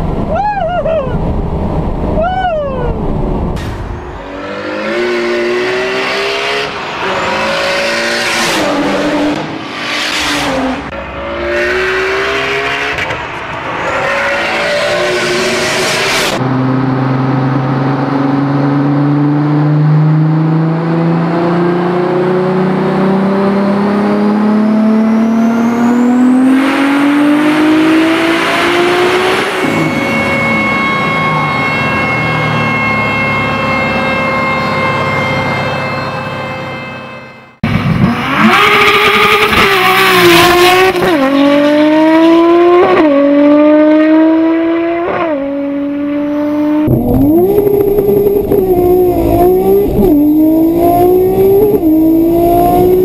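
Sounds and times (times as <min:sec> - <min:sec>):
high turbo whine: 0:00.0 - 0:53.0
car accelerating through gears: 0:04.2 - 0:33.2, 0:37.7 - 0:53.0
engine revving on dyno: 0:04.3 - 0:13.1, 0:17.7 - 0:30.8, 0:38.0 - 0:53.0
steady high tone: 0:27.6 - 0:37.7, 0:45.5 - 0:53.0.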